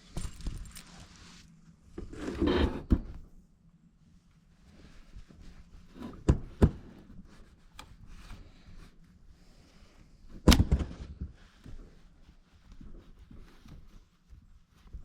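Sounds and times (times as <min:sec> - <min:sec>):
faint rubbing and scraping: 0:00.0 - 0:03.4, 0:04.1 - 0:10.4.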